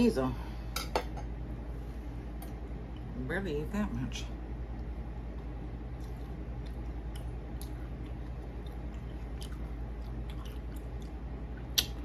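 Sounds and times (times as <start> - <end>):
steady low hum: 0.0 - 12.0
person chewing food: 4.8 - 12.0.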